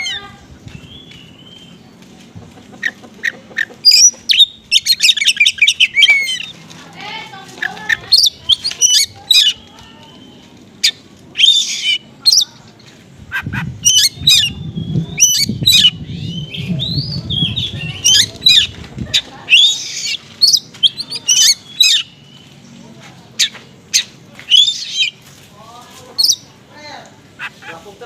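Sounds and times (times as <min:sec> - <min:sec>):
bird singing chirps and whistles: 0:13.9 - 0:18.7, 0:24.0 - 0:25.1.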